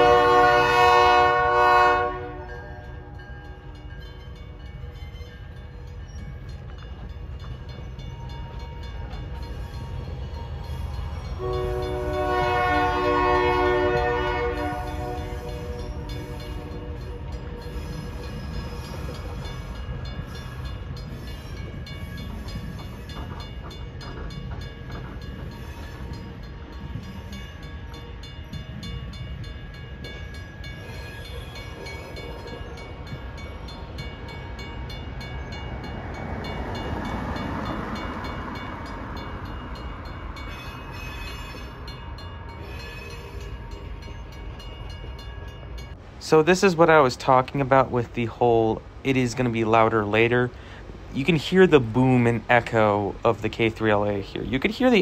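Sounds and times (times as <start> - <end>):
locomotive air horn blast: 0.0 - 2.8, 11.4 - 17.1
train rumbling: 0.0 - 55.0.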